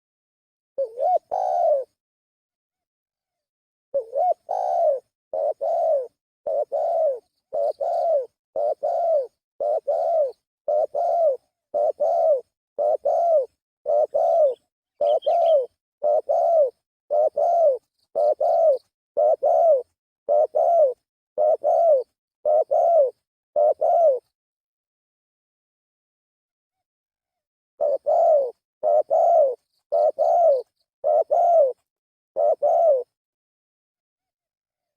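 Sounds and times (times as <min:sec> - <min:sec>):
dove cooing: 0:00.8 - 0:02.0, 0:04.0 - 0:24.3, 0:27.8 - 0:33.2.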